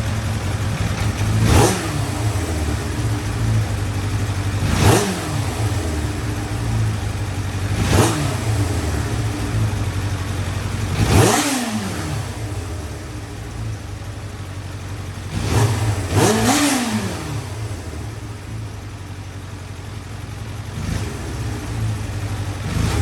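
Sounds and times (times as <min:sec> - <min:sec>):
motorcycle engine idling and revving: 0:00.0 - 0:23.0.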